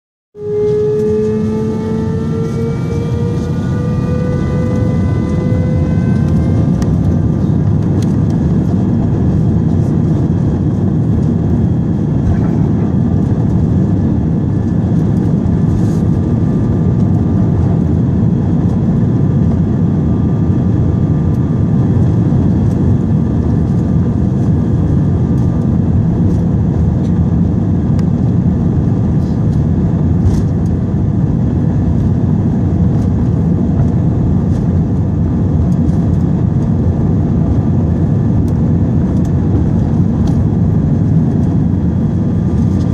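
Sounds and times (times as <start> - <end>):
loud steady jet rushing: 0.4 - 18.0
jet engines rising in pitch: 0.4 - 28.9.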